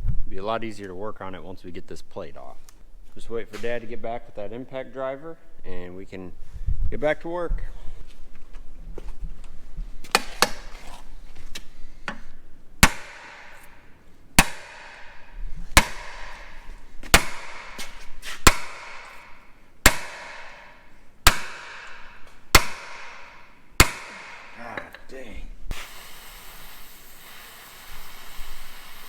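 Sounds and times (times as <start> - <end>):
hammer striking metal: 12.8 - 25.0.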